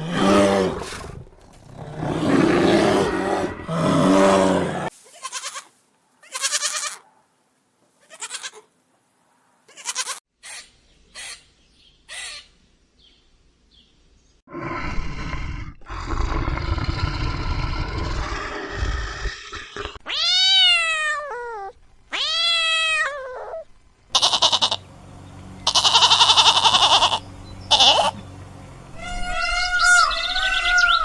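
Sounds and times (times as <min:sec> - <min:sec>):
animal growl: 0:00.0 - 0:04.9, 0:14.5 - 0:20.0
buzzy bleat-like calls: 0:00.0 - 0:07.0, 0:09.7 - 0:10.6, 0:24.1 - 0:24.9, 0:25.5 - 0:28.4, 0:29.0 - 0:31.0
meow-like calls: 0:20.0 - 0:23.6, 0:25.7 - 0:28.2, 0:29.0 - 0:31.0.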